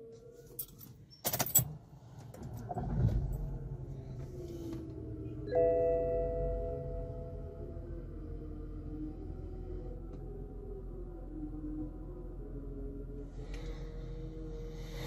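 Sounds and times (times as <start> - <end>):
car engine starting and idling: 0.5 - 11.2.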